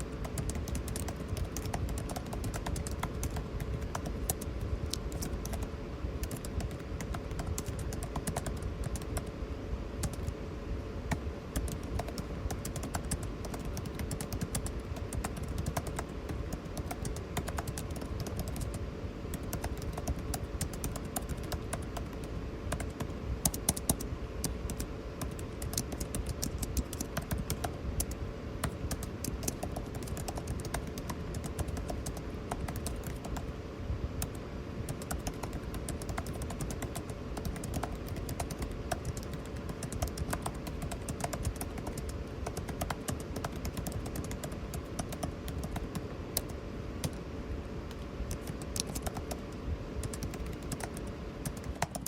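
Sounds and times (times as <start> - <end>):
keyboard typing: 0.0 - 9.3, 10.0 - 10.4, 11.1 - 33.5, 34.2 - 47.2, 47.9 - 52.0
air conditioner hum: 0.0 - 52.0.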